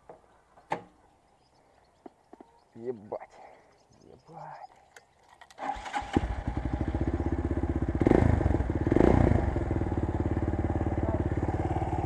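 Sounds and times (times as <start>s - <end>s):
motorcycle engine starting and idling: 5.3s - 12.0s.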